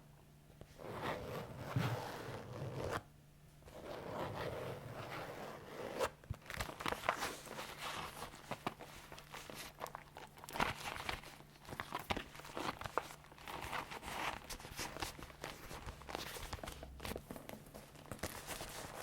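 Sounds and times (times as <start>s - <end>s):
leather creaking and rustling: 3.8s - 19.0s.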